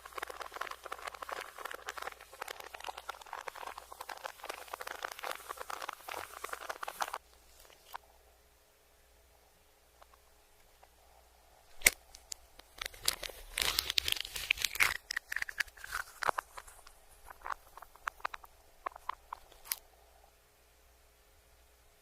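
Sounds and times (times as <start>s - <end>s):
reversed eating crunching: 0.0s - 8.0s, 12.6s - 19.8s.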